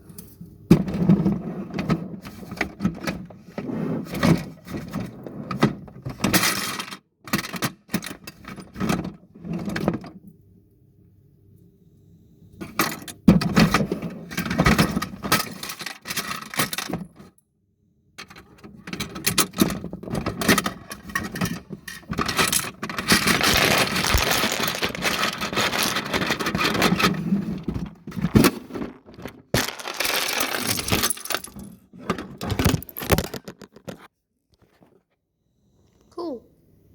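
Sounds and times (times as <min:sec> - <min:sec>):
plastic toy truck rattling: 0:00.9 - 0:10.0, 0:13.0 - 0:17.2, 0:18.2 - 0:34.1.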